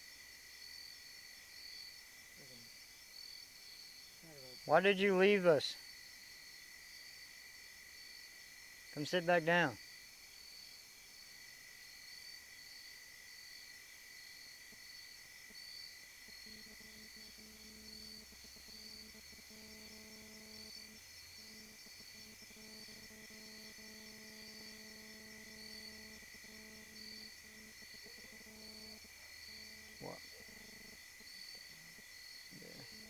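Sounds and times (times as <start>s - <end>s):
insects trilling: 0.0s - 33.0s
faint low hum: 15.5s - 33.0s.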